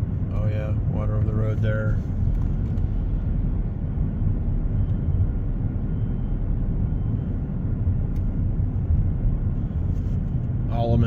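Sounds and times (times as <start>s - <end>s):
car road rumble inside cabin: 0.0s - 11.0s.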